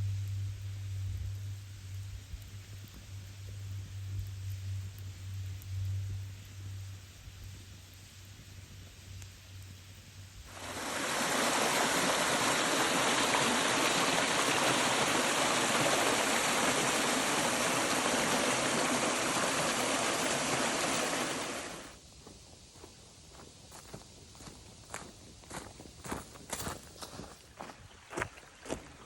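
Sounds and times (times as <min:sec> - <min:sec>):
running water rushing: 0:10.5 - 0:22.0.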